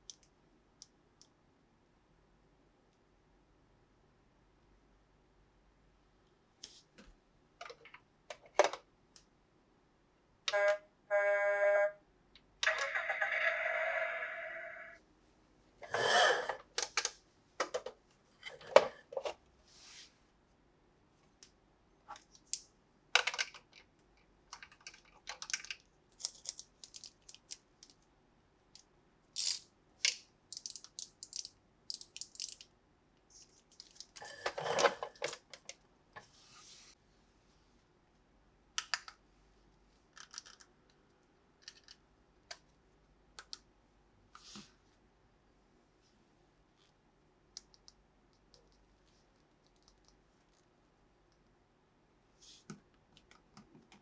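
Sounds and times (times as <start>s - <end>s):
plastic toys and packaging rustling: 23.2s - 23.9s, 24.5s - 28.1s, 29.4s - 32.7s, 33.3s - 36.6s, 39.9s - 41.0s.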